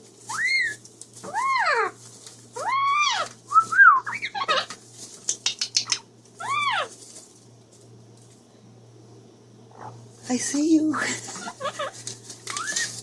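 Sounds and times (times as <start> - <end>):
parrot whistle-like calls: 0.3 - 1.9, 2.6 - 4.7
parrot sharp clicks: 5.2 - 6.1.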